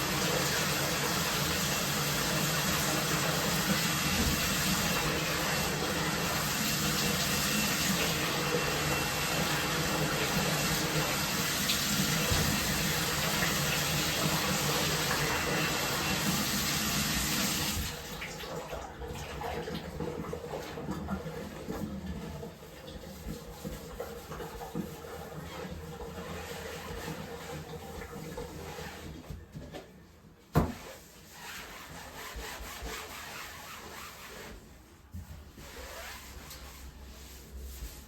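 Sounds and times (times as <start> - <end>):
tap water running into bathtub: 0.0 - 29.8.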